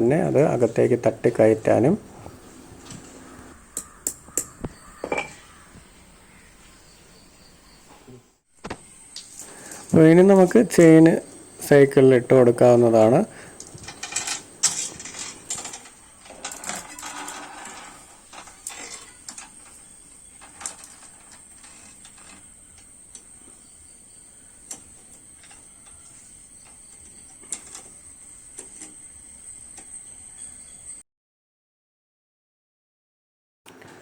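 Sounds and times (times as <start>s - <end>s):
bicycle chain links clinking: 13.6s - 22.8s.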